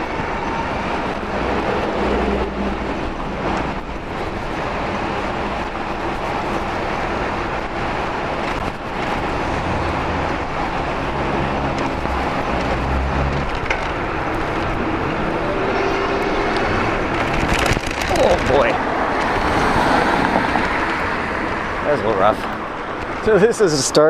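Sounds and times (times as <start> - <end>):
wind rushing: 0.0 - 21.8
tyre noise on rough pavement: 3.0 - 23.4
low hum: 11.6 - 18.1.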